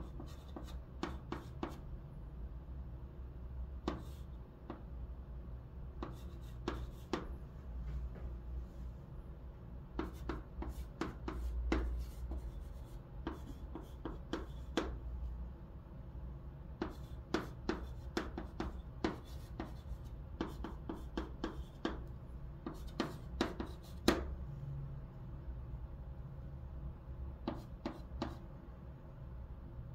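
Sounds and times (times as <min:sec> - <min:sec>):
chalk tapping and scratching: 0:00.0 - 0:01.8, 0:03.8 - 0:04.9, 0:06.0 - 0:07.4, 0:09.9 - 0:15.0, 0:16.8 - 0:24.3, 0:27.4 - 0:28.5.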